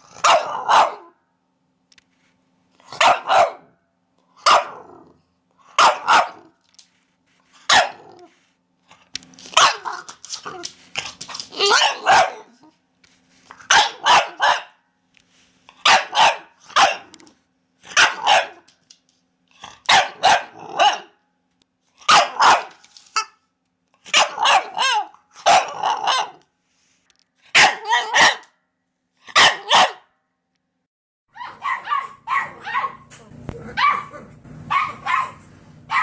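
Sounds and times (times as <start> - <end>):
puppy barking: 0.2 - 1.2, 2.9 - 3.8, 4.4 - 4.9, 5.8 - 6.6, 7.7 - 8.2, 9.6 - 10.1, 11.6 - 12.6, 13.6 - 14.8, 15.8 - 17.2, 17.9 - 18.7, 19.9 - 21.2, 22.1 - 23.3, 24.1 - 26.4, 27.5 - 28.6, 29.3 - 30.1, 31.3 - 36.0
puppy yelp: 11.5 - 12.6, 24.1 - 26.4, 27.6 - 28.4, 29.4 - 30.0, 31.3 - 33.1, 33.7 - 36.0.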